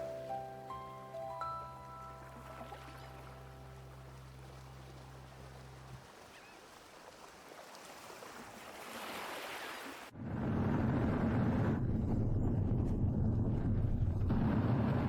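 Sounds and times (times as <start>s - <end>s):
deep rumbling noise: 10.2s - 15.0s.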